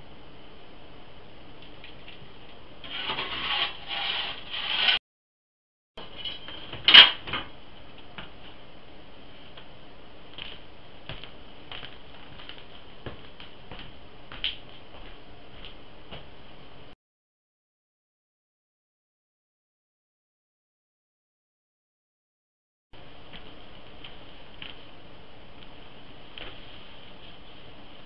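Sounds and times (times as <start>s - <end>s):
metal shovel scraping ash: 2.8s - 5.0s.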